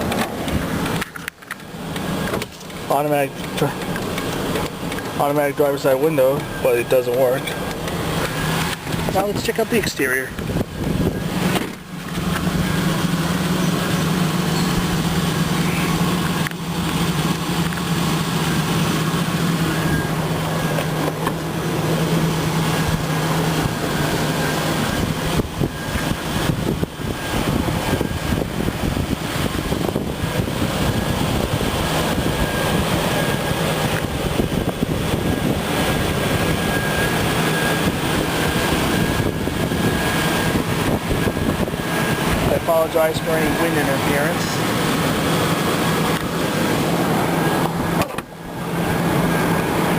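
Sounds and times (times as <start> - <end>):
truck engine idling: 0.0 - 49.9
wind buffeting microphone: 10.3 - 13.1, 22.5 - 42.7.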